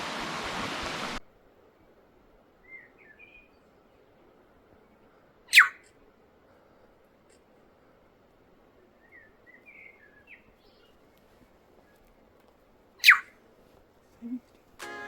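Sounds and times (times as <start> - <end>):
rushing stream water: 0.0 - 1.2
faint bird chirps: 2.6 - 6.2, 8.7 - 12.2, 13.0 - 13.4
quick sweeping bird call: 5.5 - 5.8, 13.0 - 13.3.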